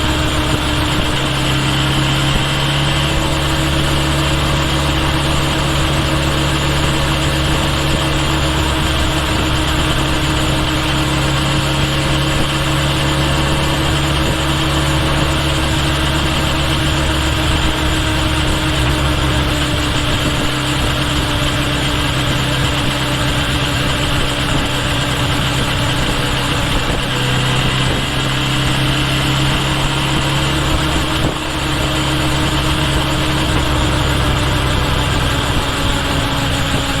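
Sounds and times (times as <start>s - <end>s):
motorcycle engine running steadily: 0.0s - 37.0s
road and wind noise: 0.0s - 37.0s.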